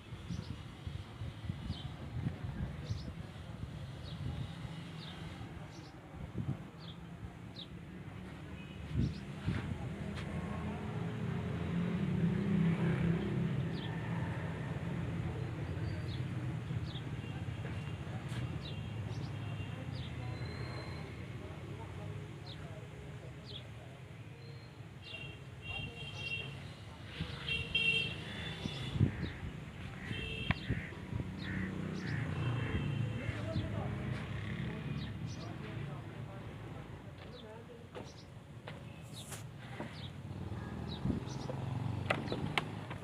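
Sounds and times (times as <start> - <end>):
birds chirping: 27.5 - 36.0, 37.2 - 43.0.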